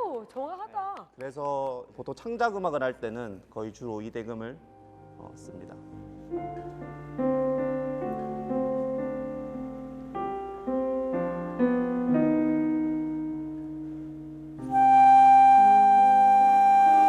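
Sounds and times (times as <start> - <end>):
slow piano chords: 4.6 - 17.0.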